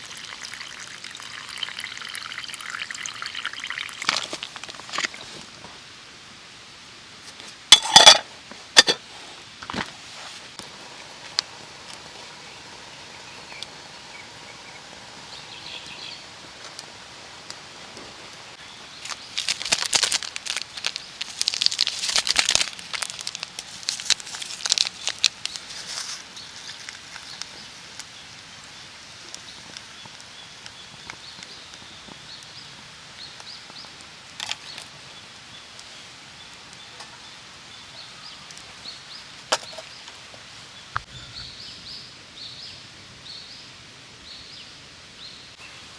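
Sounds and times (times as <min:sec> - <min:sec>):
steady outdoor hiss: 0:00.0 - 0:45.9
dry wood crackling and snapping: 0:15.8 - 0:32.5.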